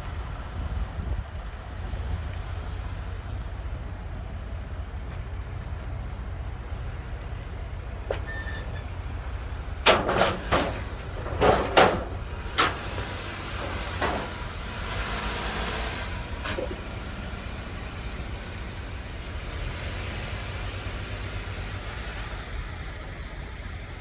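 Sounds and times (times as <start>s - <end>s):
truck engine rumbling: 0.0s - 24.0s
loud metallic clanks and bangs: 8.0s - 15.4s.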